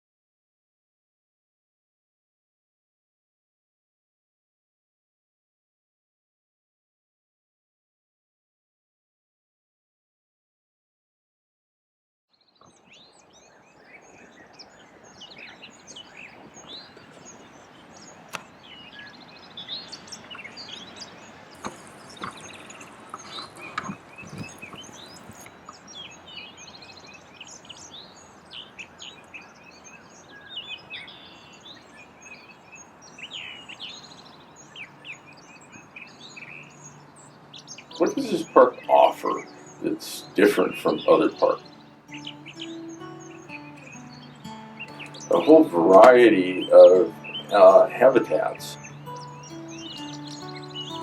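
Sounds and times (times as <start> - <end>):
outdoor background noise: 12.4 - 51.0
birds chirping and calling: 12.6 - 51.0.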